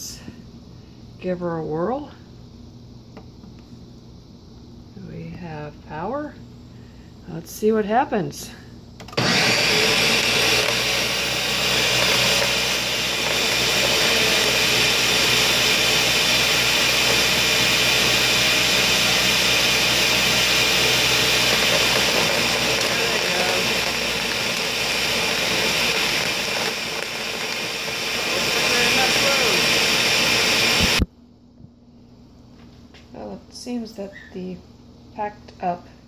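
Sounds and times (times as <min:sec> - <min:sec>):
blender whirring: 0:09.0 - 0:31.1.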